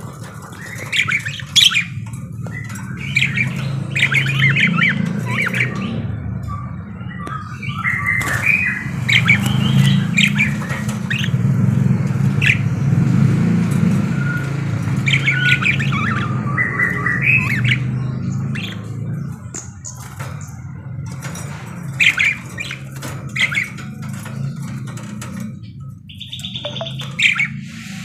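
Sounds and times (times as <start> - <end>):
budgerigars chattering: 0.0 - 13.0, 14.0 - 20.9, 21.5 - 28.0.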